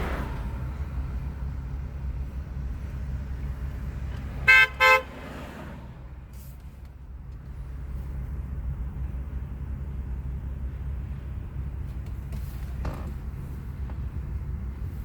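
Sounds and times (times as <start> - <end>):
car rumbling: 0.0 - 15.0
car horn blasts: 4.4 - 5.2.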